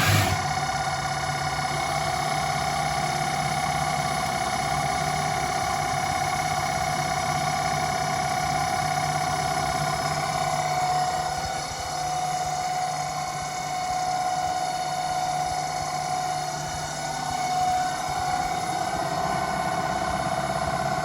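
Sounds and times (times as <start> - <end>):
lathe motor whine: 0.0 - 0.7.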